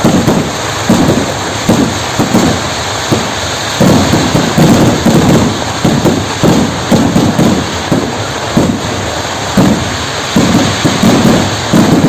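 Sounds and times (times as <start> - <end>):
firecrackers booming: 0.0 - 12.0.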